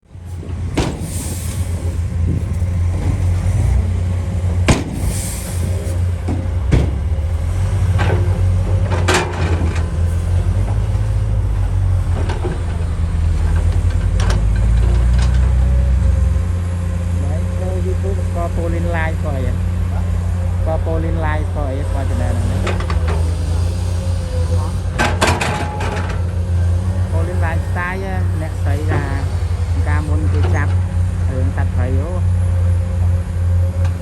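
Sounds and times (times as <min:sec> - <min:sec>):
diesel machinery rumbling: 0:00.0 - 0:34.0
sharp metallic clanks: 0:22.2 - 0:30.8.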